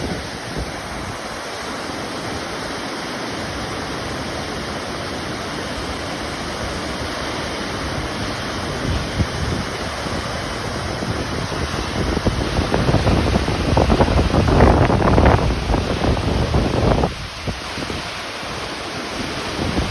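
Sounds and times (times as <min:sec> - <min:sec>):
waterfall rushing: 0:00.0 - 0:19.9
wind buffeting microphone: 0:06.5 - 0:19.9.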